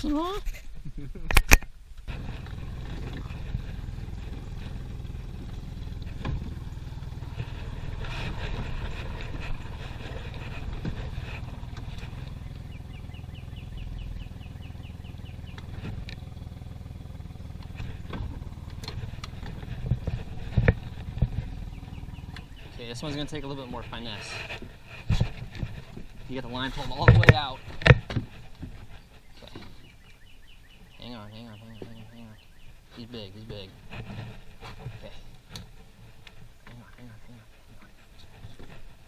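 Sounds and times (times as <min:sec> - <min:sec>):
boat motor running: 0:02.0 - 0:32.7.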